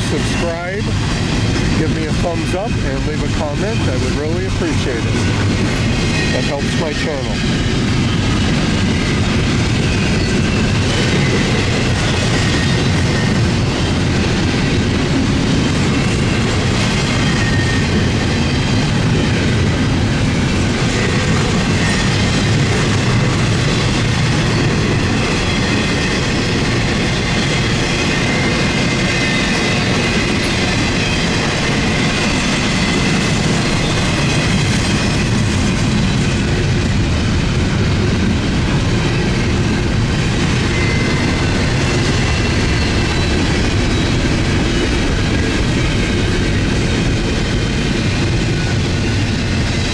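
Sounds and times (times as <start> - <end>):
high wheel squeal: 0.0 - 14.9, 15.8 - 19.4, 39.1 - 47.0
freight train cars rolling: 0.0 - 49.9.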